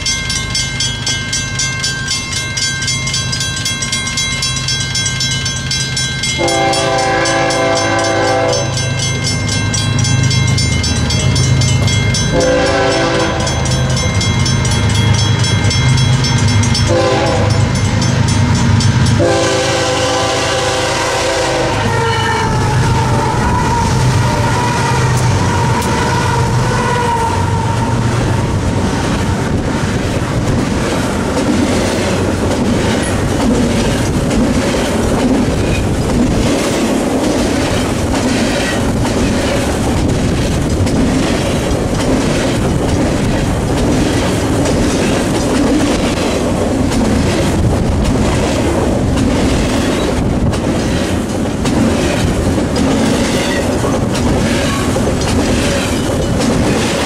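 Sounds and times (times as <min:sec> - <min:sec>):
diesel locomotive passing: 0:00.0 - 0:57.0
wheels clicking on rails: 0:21.8 - 0:57.0.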